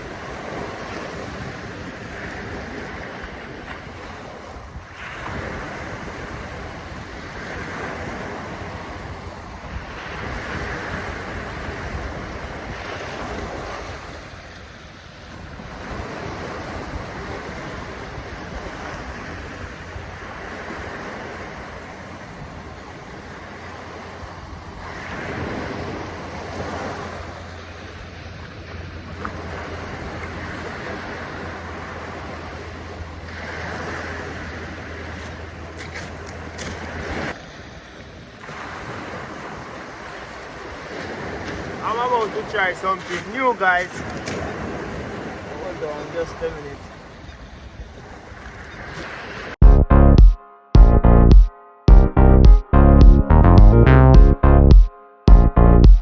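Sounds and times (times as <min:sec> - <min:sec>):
wind rumbling on microphone: 0:00.0 - 0:14.6
waves washing in: 0:00.0 - 0:47.2.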